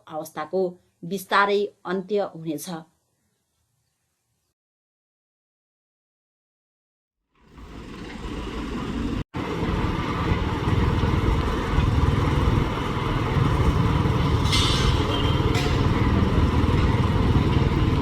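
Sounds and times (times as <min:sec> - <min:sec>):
motor engine rumbling: 0:07.5 - 0:18.0.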